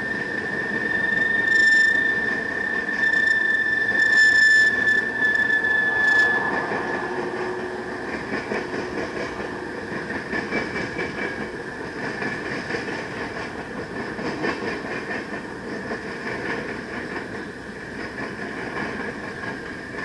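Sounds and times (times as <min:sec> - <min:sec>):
high wheel squeal: 0:00.0 - 0:13.3
freight train wheels rumbling on rail: 0:00.0 - 0:20.0.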